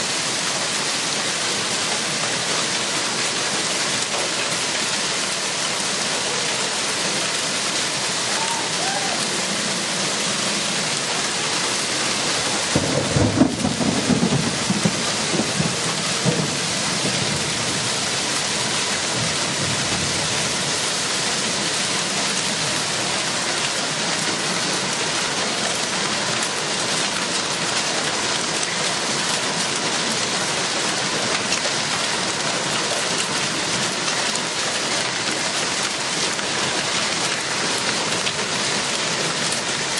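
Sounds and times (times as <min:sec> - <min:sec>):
steady rain: 0:00.0 - 0:39.9
thunder rumbling: 0:12.5 - 0:18.2.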